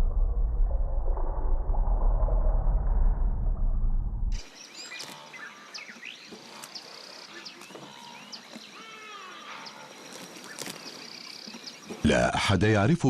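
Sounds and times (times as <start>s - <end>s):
loud low rumbling: 0.0s - 4.4s
birds chirping and calling: 4.4s - 12.0s.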